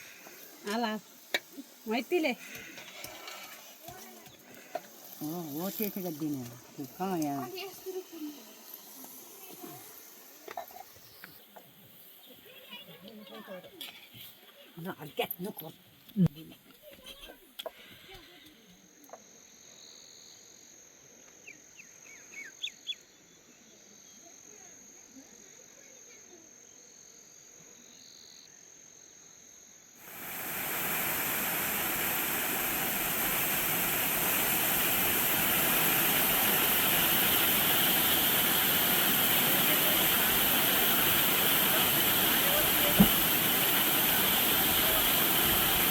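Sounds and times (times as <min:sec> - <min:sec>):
loud rushing hiss: 0:00.0 - 0:11.1, 0:30.0 - 0:45.9.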